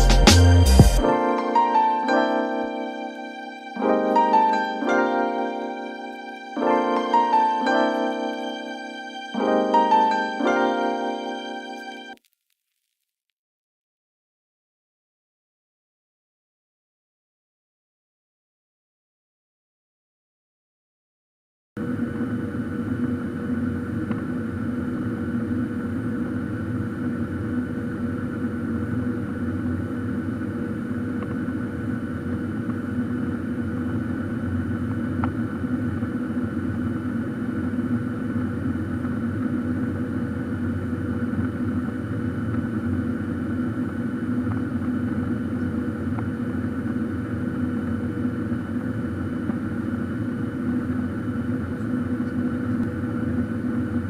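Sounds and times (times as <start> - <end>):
jet engine drone in cabin: 21.8 - 54.0.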